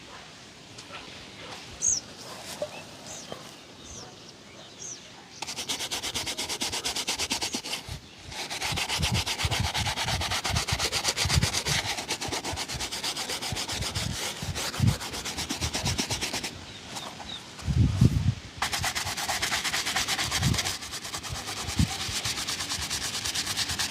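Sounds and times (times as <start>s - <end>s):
shoe being buffed: 5.4s - 17.4s, 18.6s - 23.9s.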